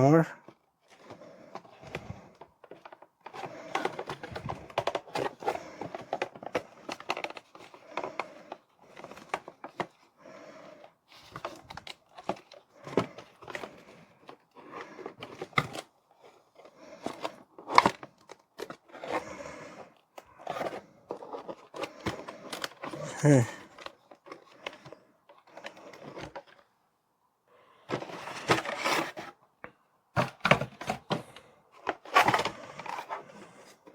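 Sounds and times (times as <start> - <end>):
plastic and cardboard crinkling: 0.4 - 26.7, 27.8 - 29.4, 30.2 - 33.9.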